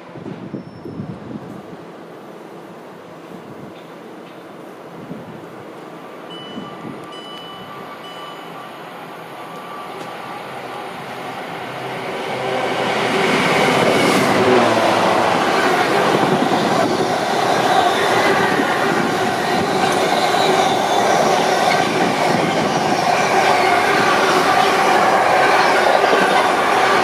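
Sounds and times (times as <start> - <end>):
train rumble: 0.0 - 27.0.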